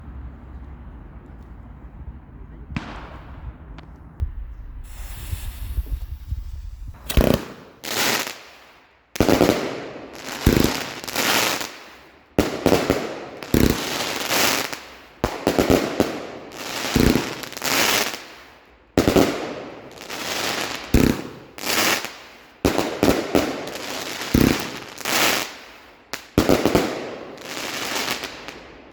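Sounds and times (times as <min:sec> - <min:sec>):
low rumble and hiss: 0:00.0 - 0:07.1
firework bangs: 0:02.6 - 0:08.6, 0:09.2 - 0:18.4, 0:19.0 - 0:25.6, 0:26.3 - 0:28.9.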